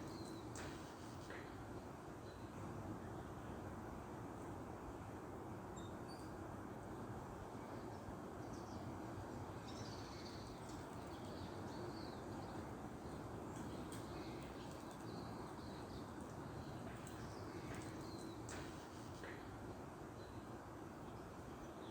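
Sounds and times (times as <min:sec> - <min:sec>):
low outdoor background hiss: 0:00.0 - 0:21.9
birds chirping: 0:09.5 - 0:19.3.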